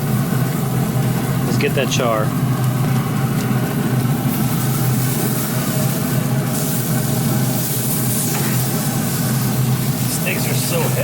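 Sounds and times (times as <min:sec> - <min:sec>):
pellet grill humming: 0:00.0 - 0:11.0
steak fat sizzling: 0:03.0 - 0:11.0.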